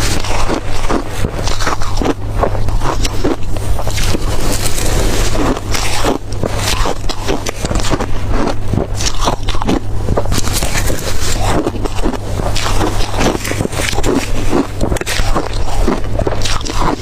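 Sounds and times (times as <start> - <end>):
crunching crushed ice: 0.0 - 17.0
steady low hum: 0.0 - 17.0.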